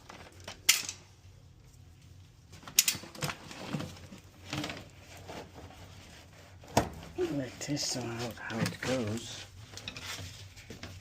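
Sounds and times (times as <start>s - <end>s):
clicks of parts and tools handled: 0.1s - 1.1s, 2.6s - 3.4s.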